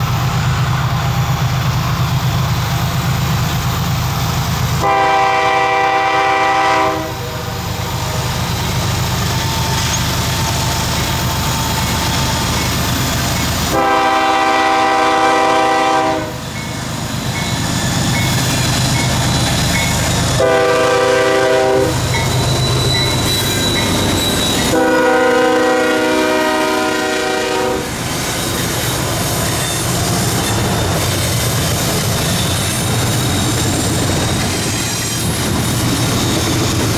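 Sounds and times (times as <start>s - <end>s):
diesel locomotive rumbling: 0.0s - 36.9s
train air horn blasts: 4.8s - 7.8s, 13.6s - 16.4s, 20.3s - 22.0s, 24.6s - 28.0s.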